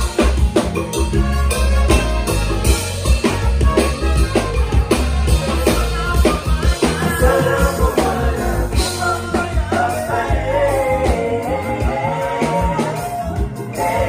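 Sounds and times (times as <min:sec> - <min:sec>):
band playing loud music: 0:00.0 - 0:14.0
heavy bass line: 0:00.0 - 0:14.0
person singing: 0:05.6 - 0:14.0.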